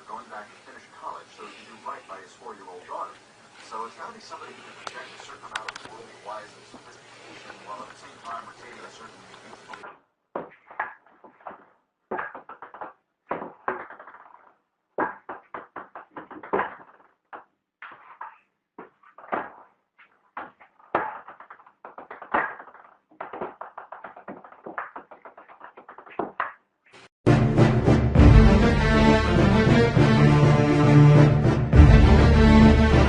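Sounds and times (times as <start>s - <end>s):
knocks and taps: 20.4s - 26.6s.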